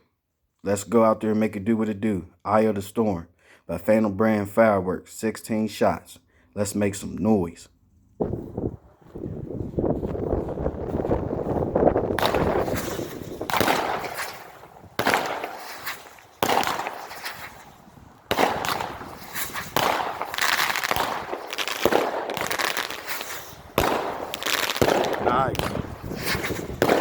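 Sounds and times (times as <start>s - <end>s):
firework shots and aerial bursts: 8.2s - 27.0s.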